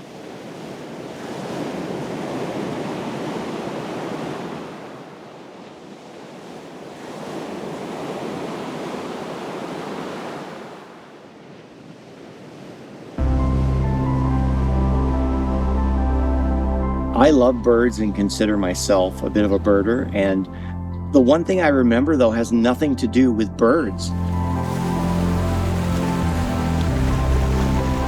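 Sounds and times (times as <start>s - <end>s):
lake waves surging on shore: 0.0s - 22.8s, 23.6s - 28.0s
wind: 0.0s - 28.0s
music: 13.2s - 28.0s.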